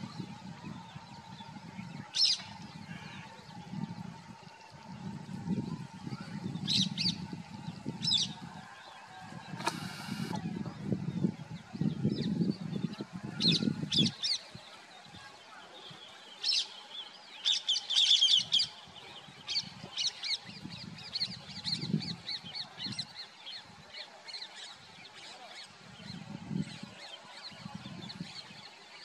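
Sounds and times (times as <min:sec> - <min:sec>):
low muffled sounds: 0:00.0 - 0:13.4.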